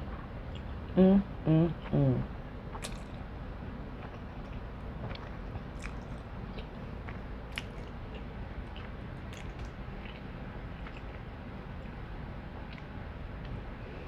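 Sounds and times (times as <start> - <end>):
low background hum: 0.0 - 14.0
wet chewing smacks and clicks: 2.7 - 3.3, 3.9 - 12.0.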